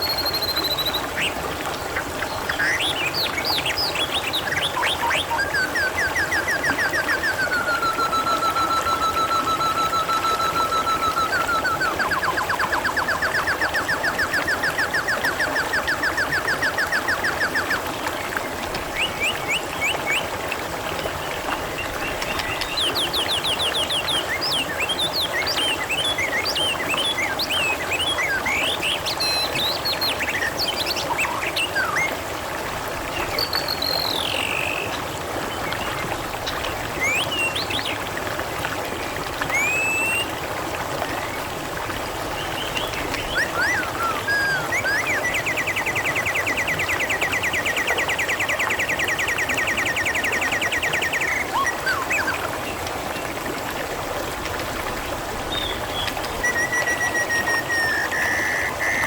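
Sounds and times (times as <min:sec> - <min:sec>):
birds chirping and whistling: 0:00.0 - 0:01.3, 0:02.5 - 0:17.8, 0:22.0 - 0:32.1, 0:39.5 - 0:40.3, 0:42.6 - 0:52.5, 0:55.5 - 0:59.0
water trickling: 0:00.0 - 0:59.0.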